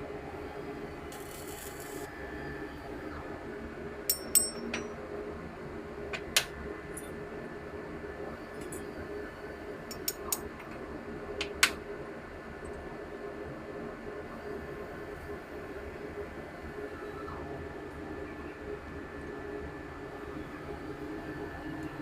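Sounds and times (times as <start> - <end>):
metallic clinks and taps: 4.1 - 4.9, 9.9 - 10.5.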